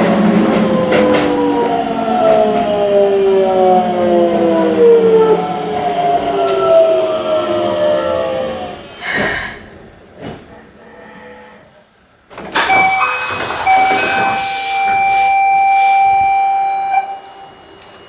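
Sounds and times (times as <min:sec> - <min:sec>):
rush of air from doors opening: 0:08.7 - 0:10.0, 0:12.6 - 0:16.4
train motor whine: 0:12.6 - 0:18.0.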